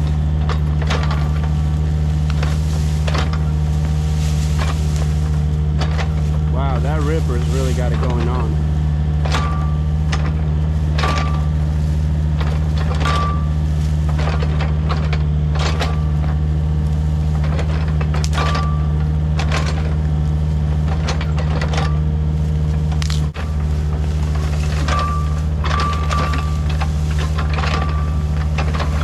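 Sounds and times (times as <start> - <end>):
metallic knocks and clanks: 0.0 - 8.5, 9.2 - 11.6, 12.3 - 16.4, 22.9 - 29.0
excavator diesel engine running: 0.0 - 29.0.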